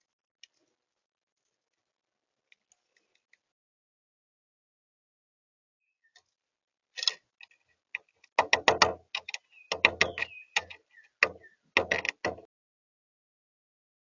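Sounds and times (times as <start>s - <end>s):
faint high bird chirps: 5.8s - 6.3s, 9.2s - 11.7s
birds tapping on hard surface: 7.0s - 12.5s.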